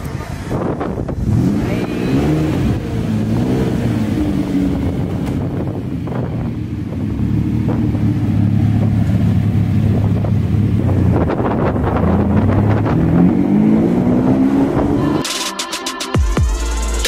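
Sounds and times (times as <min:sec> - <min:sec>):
car engine running while driving: 0:00.0 - 0:15.3.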